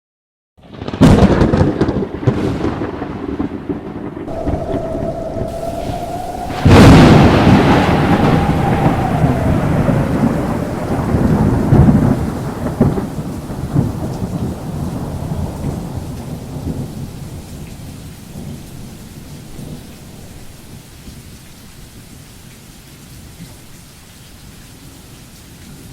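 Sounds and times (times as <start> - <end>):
thunder cracking and rumbling: 0.6 - 20.3
steady rain: 0.7 - 25.9.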